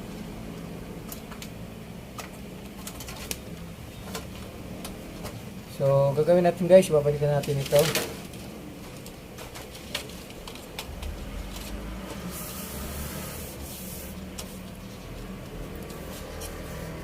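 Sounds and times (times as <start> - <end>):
parts clicking and rubbing: 1.0 - 5.4, 7.4 - 12.8, 13.4 - 17.0.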